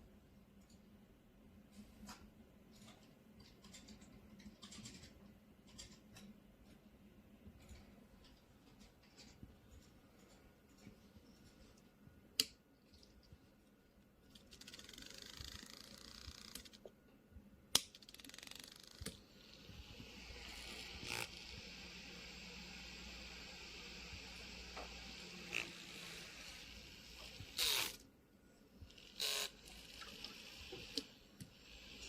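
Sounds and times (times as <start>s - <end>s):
small fan motor whirring: 14.6s - 16.8s, 18.1s - 28.0s, 28.8s - 32.0s.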